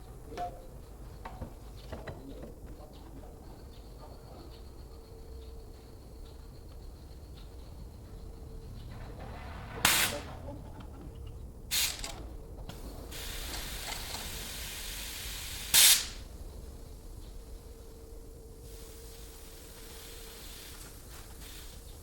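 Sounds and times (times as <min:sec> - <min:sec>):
loud hissing spray blasts: 0:09.8 - 0:10.4, 0:11.7 - 0:16.9, 0:18.6 - 0:22.0
soft continuous hiss: 0:10.0 - 0:22.0.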